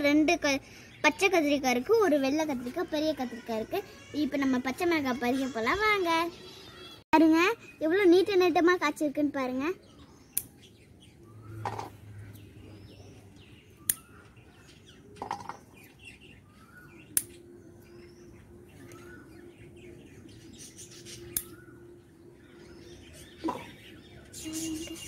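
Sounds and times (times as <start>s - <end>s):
garden scissors snipping: 10.3s - 10.6s, 13.8s - 14.2s, 17.1s - 17.4s, 21.3s - 21.7s.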